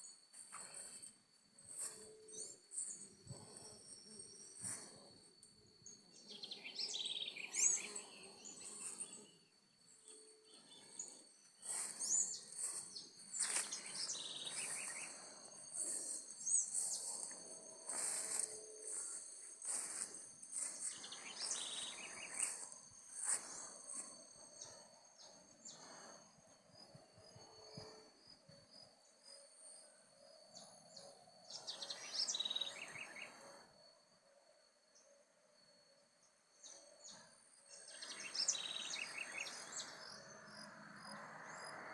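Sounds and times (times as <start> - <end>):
insects trilling: 0.0 - 41.9
birds chirping: 10.4 - 23.8.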